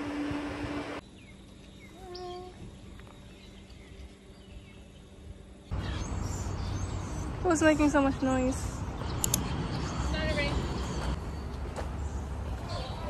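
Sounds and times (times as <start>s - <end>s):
open-air rushing noise: 0.0s - 1.4s
birds chirping: 0.0s - 13.0s.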